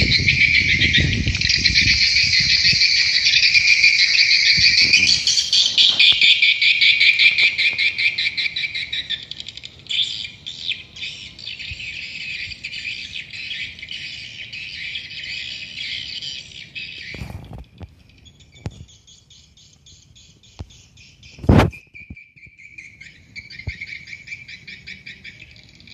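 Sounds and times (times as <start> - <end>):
swiftlets twittering: 0.0 - 11.2.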